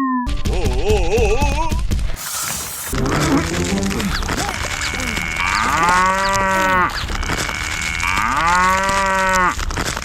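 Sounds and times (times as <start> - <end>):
cow mooing: 3.0 - 9.5.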